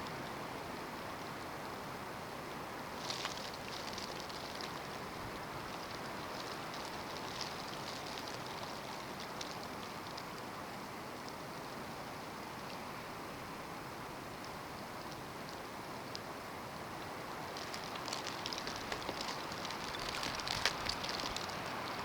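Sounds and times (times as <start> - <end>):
snow grains ticking on surface: 3.0 - 10.6, 17.4 - 22.0.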